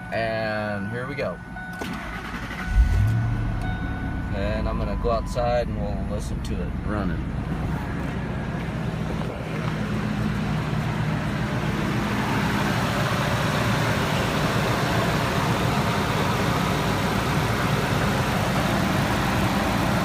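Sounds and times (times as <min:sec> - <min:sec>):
pickup truck engine idling: 0:01.5 - 0:20.0.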